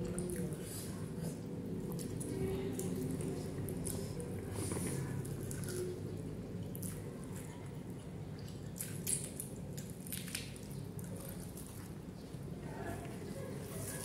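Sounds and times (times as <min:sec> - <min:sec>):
wet chewing and mouth smacks: 0:08.4 - 0:12.0.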